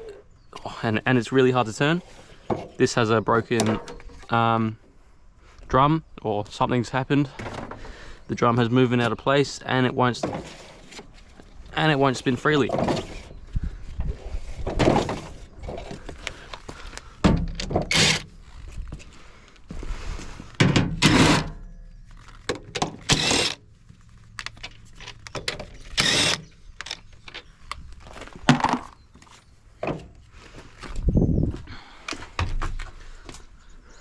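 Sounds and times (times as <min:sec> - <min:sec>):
metal and plastic parts clattering: 0:14.6 - 0:18.3, 0:24.4 - 0:29.0.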